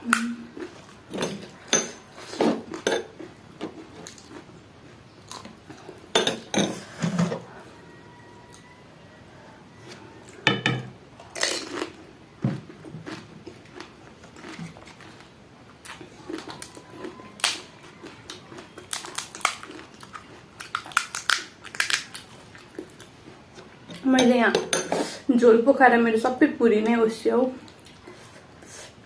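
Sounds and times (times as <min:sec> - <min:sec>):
tableware clinking: 0:01.1 - 0:02.0, 0:02.8 - 0:03.1, 0:06.2 - 0:06.8, 0:10.5 - 0:10.9
crisp shells crunching: 0:15.9 - 0:23.0.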